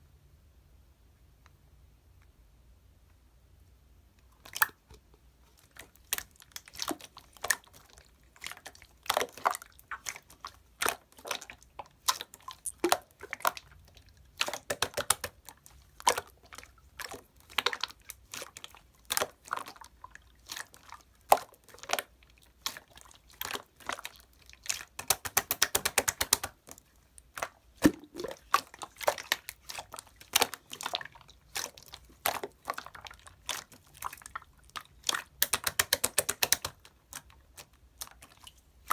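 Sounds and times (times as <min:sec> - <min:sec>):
sharp clicks and taps: 0:25.0 - 0:26.5, 0:35.4 - 0:36.8.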